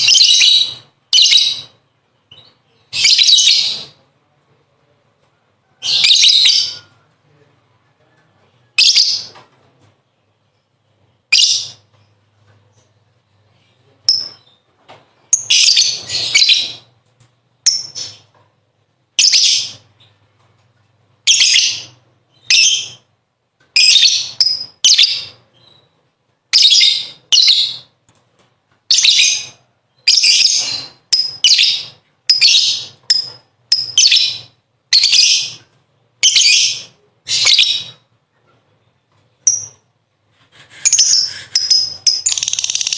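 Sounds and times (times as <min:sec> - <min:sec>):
lovebird shrill chattering: 0:40.8 - 0:42.9.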